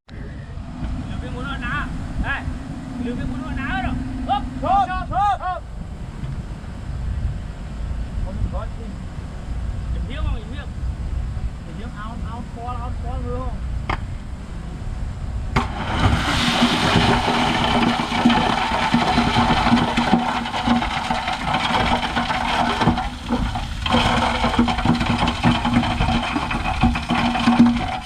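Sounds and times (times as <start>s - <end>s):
diesel engine hum under load: 0.1s - 28.0s
metallic clanks and knocks: 15.6s - 28.0s.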